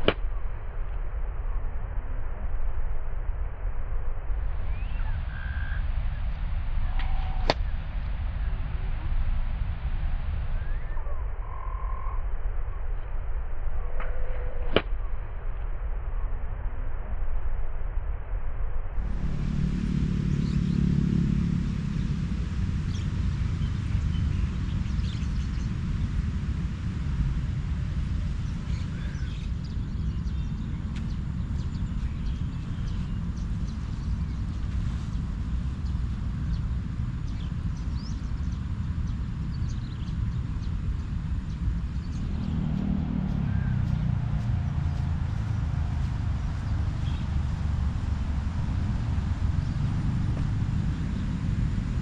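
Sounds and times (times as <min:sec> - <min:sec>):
low rumble: 0:00.0 - 0:52.0
faint bird chirps: 0:04.6 - 0:06.0, 0:10.6 - 0:13.0
humming tone: 0:19.0 - 0:26.9.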